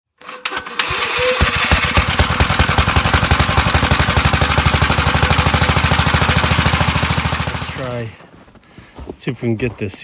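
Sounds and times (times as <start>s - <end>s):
engine chugging: 0.7s - 8.2s.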